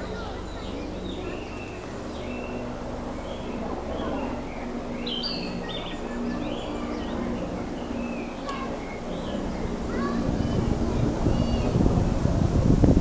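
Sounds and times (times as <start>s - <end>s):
children's voices: 0.0s - 12.4s
bird singing whistled phrases: 5.0s - 7.2s.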